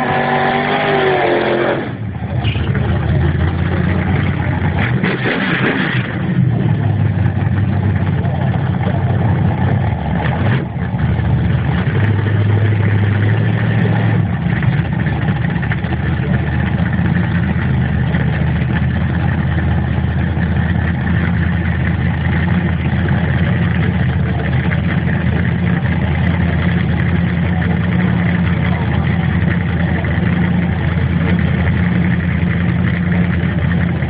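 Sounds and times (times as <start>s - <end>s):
truck engine idling loudly: 0.0s - 34.0s.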